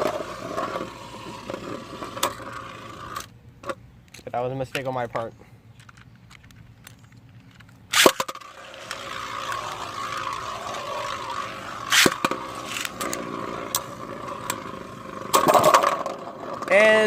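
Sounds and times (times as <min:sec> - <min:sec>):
spinning tops whirring scrape: 0:00.0 - 0:03.3, 0:07.9 - 0:17.0
spinning tops launched with crack: 0:07.9 - 0:16.8
spinning tops clashing: 0:08.0 - 0:16.2.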